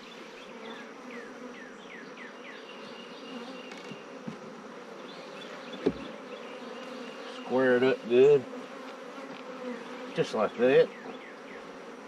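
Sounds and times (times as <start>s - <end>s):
bees buzzing: 0.0s - 12.0s
soft wooden knocks: 3.7s - 4.6s, 5.8s - 6.1s.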